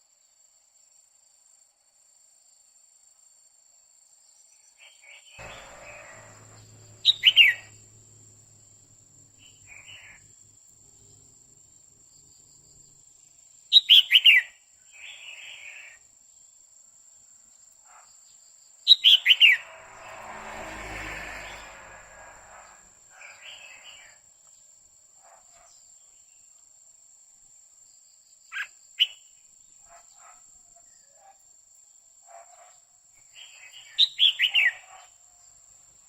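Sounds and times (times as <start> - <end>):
bulbul calling: 5.4 - 10.4.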